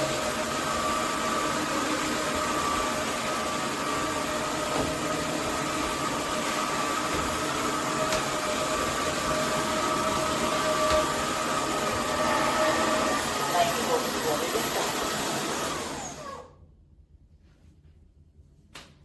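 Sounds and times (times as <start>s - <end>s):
vacuum suction and motor whine: 0.0s - 16.6s.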